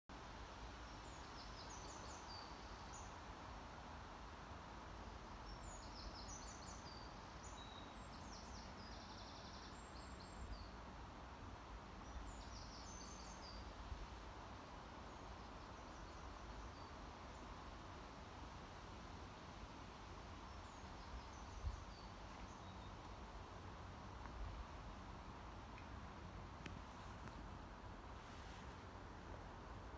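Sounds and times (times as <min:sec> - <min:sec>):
background hiss: 0:00.1 - 0:29.9
songbird chirping: 0:00.8 - 0:03.2, 0:05.1 - 0:10.9, 0:11.8 - 0:17.7, 0:20.2 - 0:27.6.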